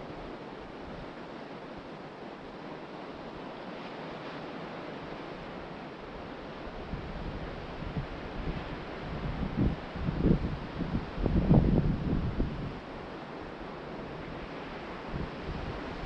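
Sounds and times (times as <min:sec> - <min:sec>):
ocean surf on a beach: 0:00.0 - 0:16.0
wind buffeting microphone: 0:06.6 - 0:13.1, 0:14.0 - 0:16.0.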